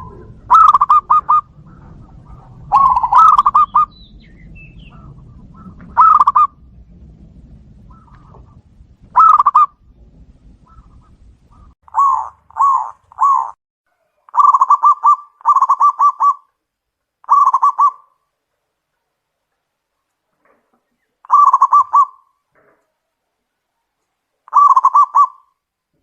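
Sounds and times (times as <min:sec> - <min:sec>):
dove cooing: 0:00.0 - 0:06.9, 0:07.8 - 0:16.5, 0:17.2 - 0:18.2, 0:20.8 - 0:22.3, 0:24.5 - 0:25.6.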